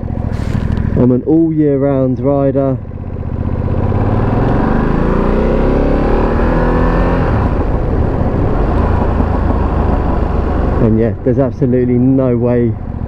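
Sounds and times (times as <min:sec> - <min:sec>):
motorcycle engine accelerating: 0:00.0 - 0:13.0
road noise: 0:00.0 - 0:13.0
wind noise: 0:04.1 - 0:12.8.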